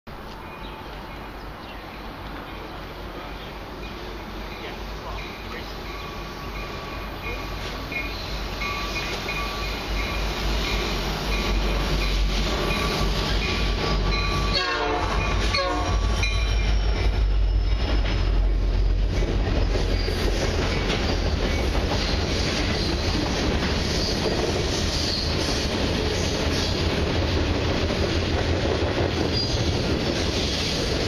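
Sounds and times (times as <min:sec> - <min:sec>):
diesel locomotive engine rumble: 0:00.1 - 0:31.0
train horn blasts: 0:12.5 - 0:16.5.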